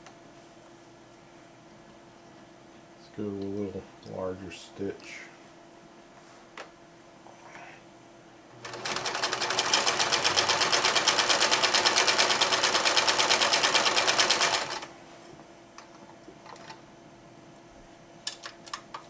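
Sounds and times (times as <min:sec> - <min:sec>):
electric sewing machine stitching: 0:08.6 - 0:14.9.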